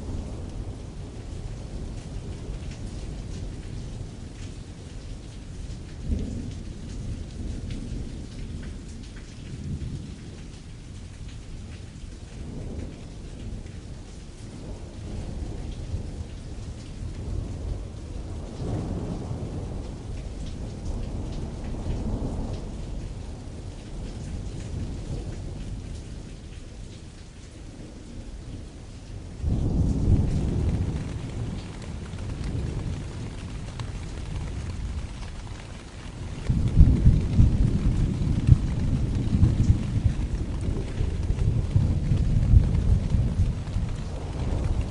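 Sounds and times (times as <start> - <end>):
rain on a canvas tent: 0.0 - 44.9
thunder rumbling: 11.6 - 44.9.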